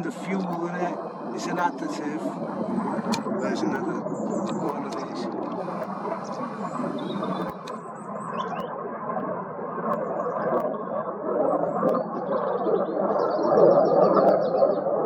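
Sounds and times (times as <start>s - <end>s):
small birds chirping: 0.0s - 8.7s
distant jet engine roar: 0.0s - 11.9s.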